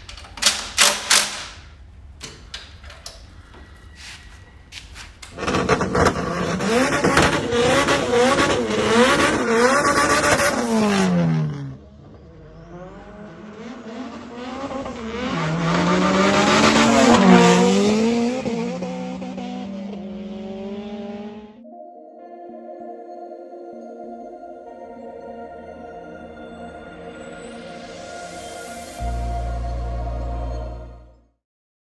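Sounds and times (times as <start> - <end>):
tyres squealing: 2.2 - 5.7
car engine revving hard: 5.4 - 21.6.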